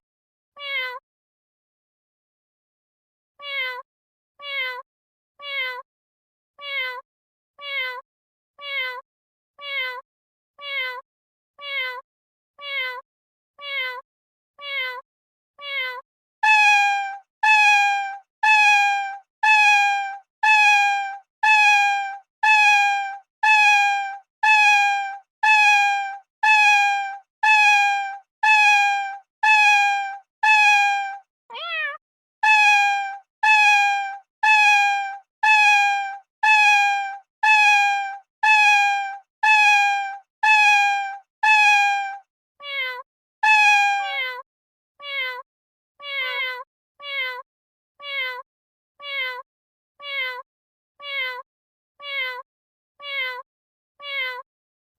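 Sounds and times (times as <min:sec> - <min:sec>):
cat meowing: 0:00.6 - 0:01.0, 0:03.4 - 0:03.8, 0:04.4 - 0:04.8, 0:05.4 - 0:05.8, 0:06.6 - 0:07.0, 0:07.6 - 0:08.0, 0:08.6 - 0:09.0, 0:09.6 - 0:10.0, 0:10.6 - 0:11.0, 0:11.6 - 0:12.0, 0:12.6 - 0:13.0, 0:13.6 - 0:14.0, 0:14.6 - 0:15.0, 0:15.6 - 0:44.4, 0:45.0 - 0:45.4, 0:46.0 - 0:47.4, 0:48.0 - 0:48.4, 0:49.0 - 0:49.4, 0:50.0 - 0:50.4, 0:52.0 - 0:52.4, 0:53.0 - 0:53.4, 0:54.0 - 0:54.4
cat rising wavering call: 0:16.4 - 0:44.4.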